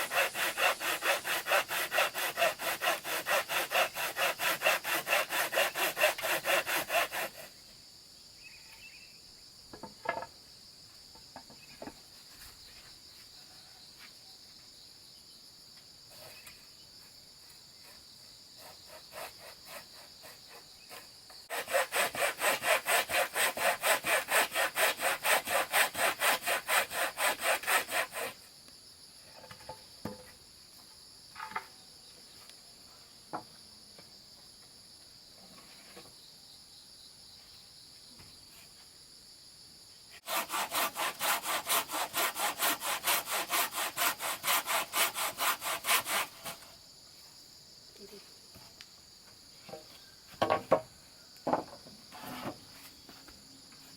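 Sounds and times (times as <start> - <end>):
insects shrilling: 0.0 - 7.2
hand saw cutting wood: 0.0 - 7.5, 18.6 - 28.4, 40.2 - 46.7, 52.1 - 52.6.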